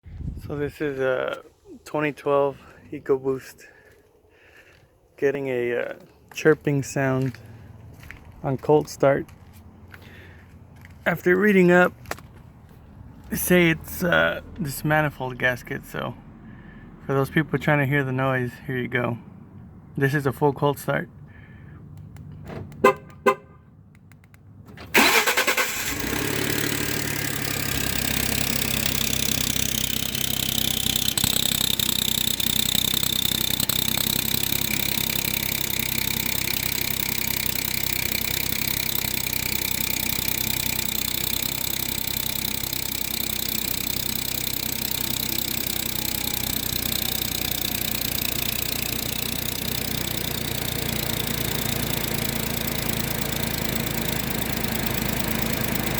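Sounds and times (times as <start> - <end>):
truck engine starting and idling: 0.1 - 55.9
clicks: 21.9 - 23.2, 23.9 - 25.2.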